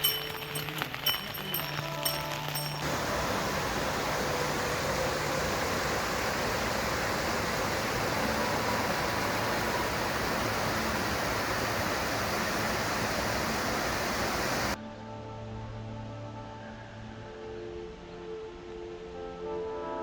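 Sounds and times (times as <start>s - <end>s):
running water: 0.0s - 14.8s.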